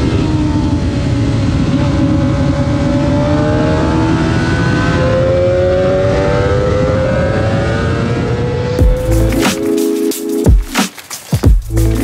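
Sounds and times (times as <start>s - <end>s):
vehicle engine accelerating: 0.0s - 9.4s.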